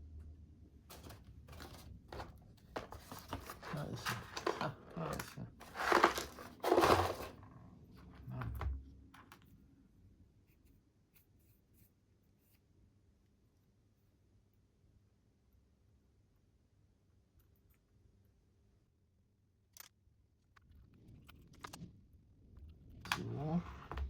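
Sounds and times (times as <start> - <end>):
packaging rustling and crinkling: 0.9 - 7.4.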